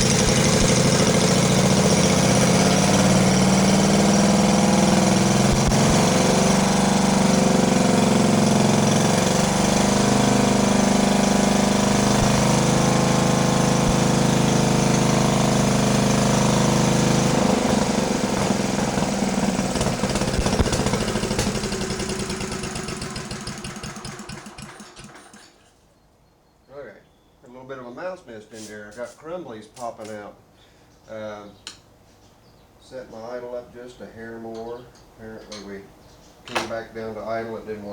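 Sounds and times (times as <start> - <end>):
small engine running: 0.0 - 25.7.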